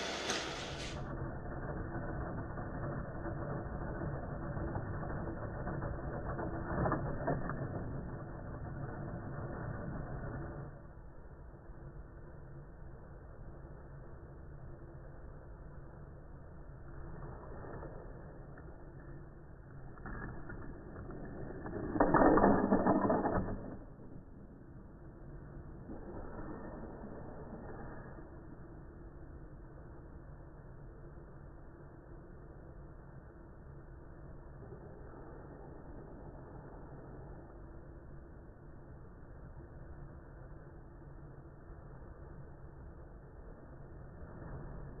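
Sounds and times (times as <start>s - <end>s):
toy car motor hum: 0.0s - 10.6s
toy cars clattering on plastic track: 20.4s - 24.2s.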